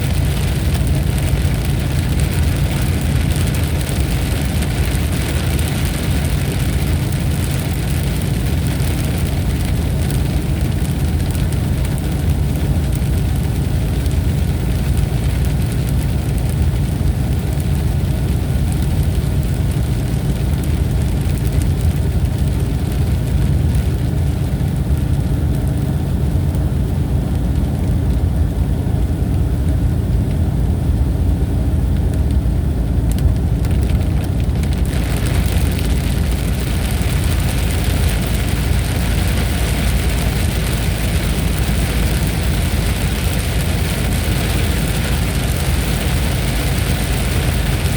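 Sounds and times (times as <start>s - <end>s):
steady rain hiss: 33.0s - 47.9s.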